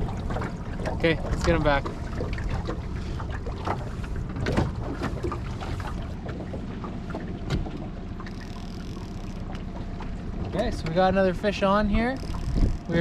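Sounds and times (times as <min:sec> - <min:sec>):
boat motor running: 0:00.0 - 0:13.0
wind on microphone: 0:11.9 - 0:13.0.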